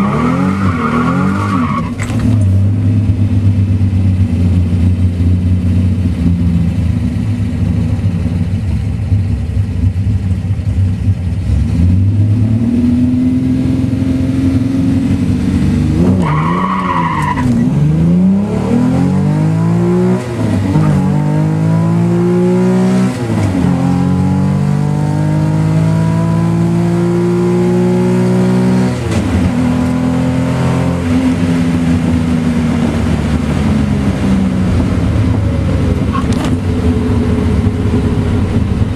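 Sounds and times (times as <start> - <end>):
tyre squeal from wheelspin: 0.0 - 2.1, 16.2 - 17.6, 36.1 - 36.6
car engine revving: 0.0 - 8.5, 9.8 - 38.9.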